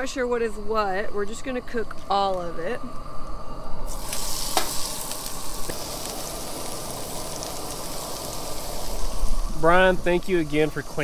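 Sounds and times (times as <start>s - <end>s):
fish sizzling in a skillet: 3.9s - 11.0s.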